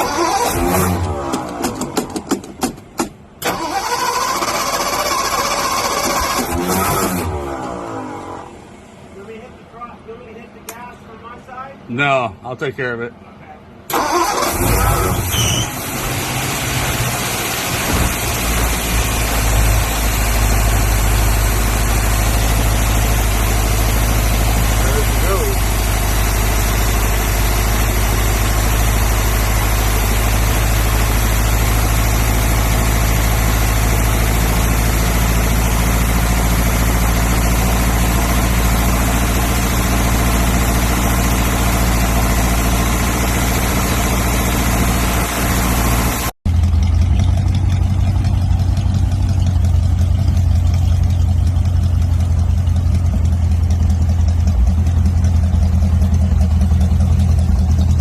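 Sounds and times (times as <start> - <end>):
car engine idling: 13.8 - 58.0.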